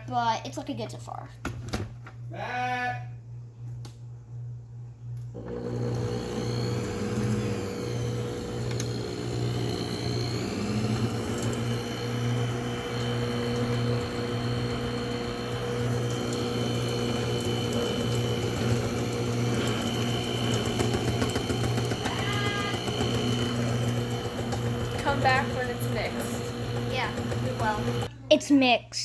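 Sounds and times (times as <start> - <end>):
electric mixer motor humming: 5.3 - 28.1.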